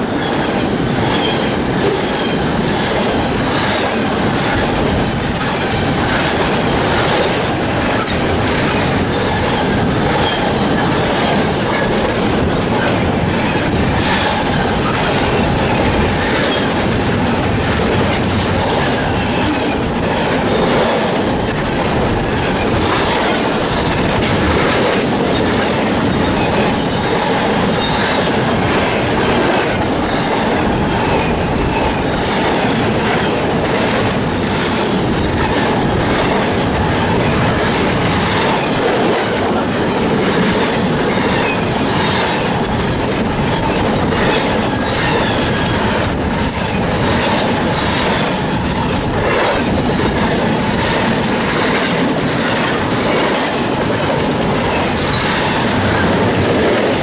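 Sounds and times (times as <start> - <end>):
freight train rumble and rattle: 0.0 - 57.0.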